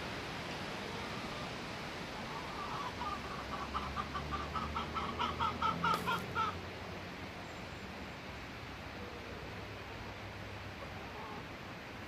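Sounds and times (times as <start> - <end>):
wind hiss: 0.0 - 7.4.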